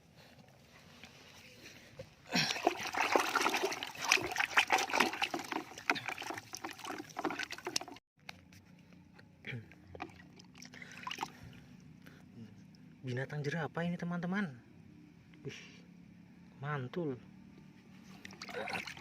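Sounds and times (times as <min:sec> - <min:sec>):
water splashing and sloshing: 0:02.3 - 0:08.0, 0:09.9 - 0:11.9, 0:18.0 - 0:19.0.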